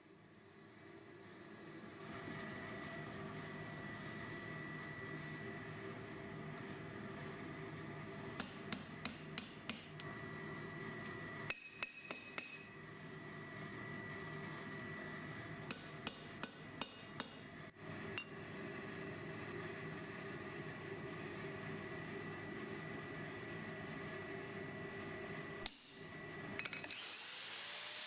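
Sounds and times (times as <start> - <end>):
steady background hum: 0.0 - 26.9
hammer striking steel on anvil: 8.4 - 10.0, 11.5 - 12.7, 15.7 - 17.4, 25.6 - 26.9.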